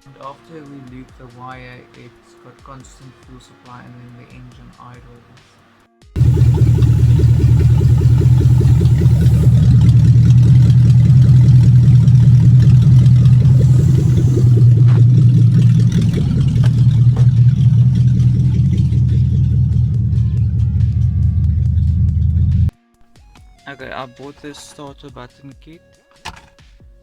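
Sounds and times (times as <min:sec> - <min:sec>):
car engine idling loudly: 0:06.2 - 0:22.7.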